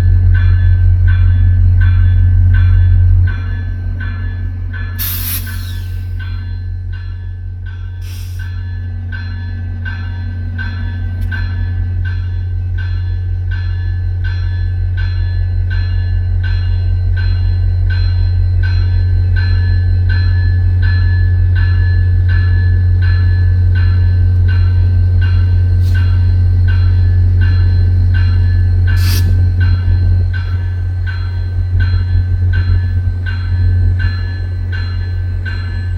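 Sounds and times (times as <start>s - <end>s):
locomotive bell ringing: 0.0s - 35.9s.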